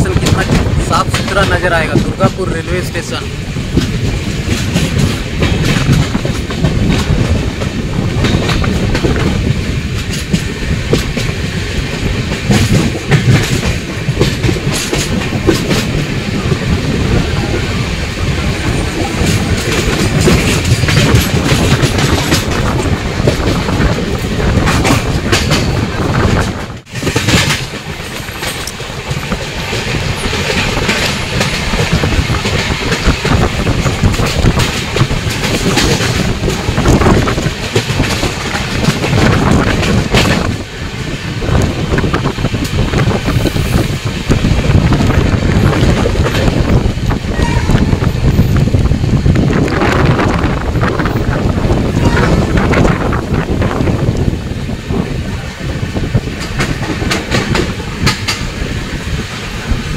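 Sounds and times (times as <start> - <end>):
train running at speed: 0.0 - 59.9
wheels clattering over rail joints: 18.3 - 59.9.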